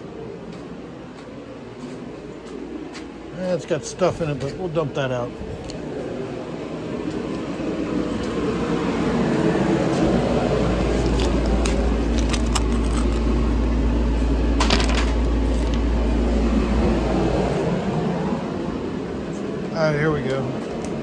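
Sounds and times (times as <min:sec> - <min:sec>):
small metal parts clinking: 0:11.0 - 0:13.4, 0:14.6 - 0:15.8.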